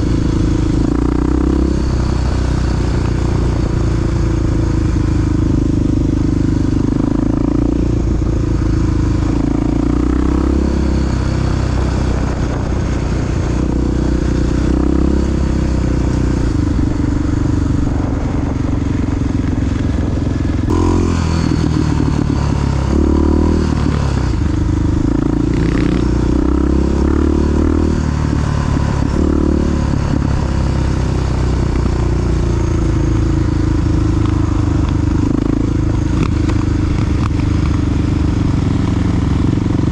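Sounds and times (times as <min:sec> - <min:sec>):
dirt bike engine revving: 0:00.0 - 0:19.2, 0:20.5 - 0:33.1.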